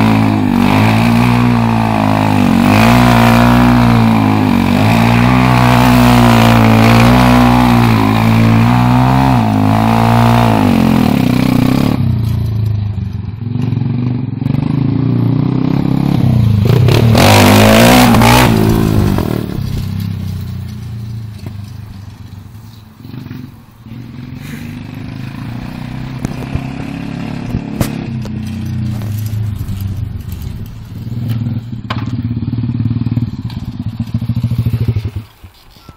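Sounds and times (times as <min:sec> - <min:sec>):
motorbike engine: 0:00.0 - 0:35.9
clicks and clatter: 0:18.6 - 0:22.9, 0:27.5 - 0:32.2.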